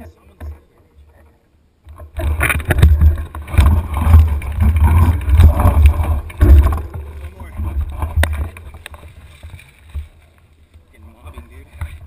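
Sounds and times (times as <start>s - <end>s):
bike rattling over bumps: 1.9s - 12.0s
wind buffeting microphone: 2.0s - 9.6s.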